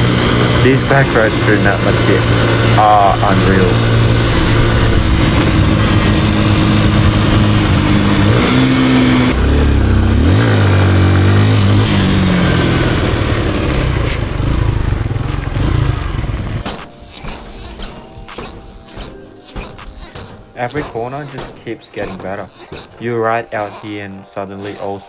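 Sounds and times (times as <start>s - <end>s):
noisy rush: 0.0s - 21.4s
motorcycle engine running: 0.0s - 25.0s.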